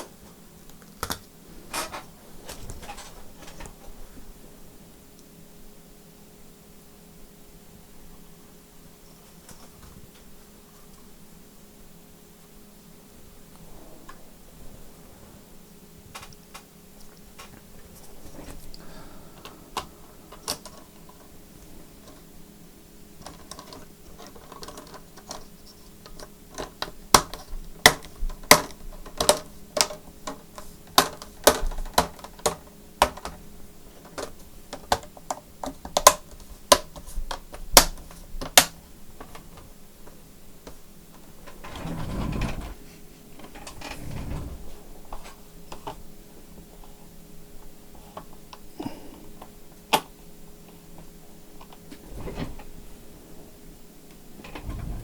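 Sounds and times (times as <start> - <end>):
low rubbing noise: 41.2 - 45.3, 51.8 - 55.0.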